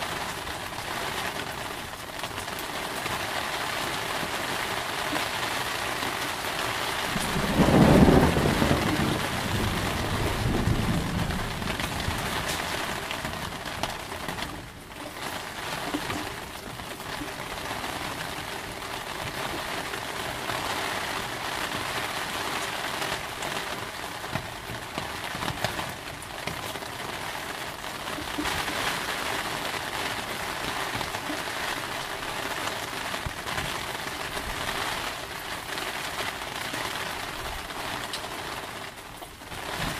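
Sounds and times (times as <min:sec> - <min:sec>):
heavy rain: 0:00.0 - 0:39.9
deep thunder rumble: 0:07.0 - 0:13.7.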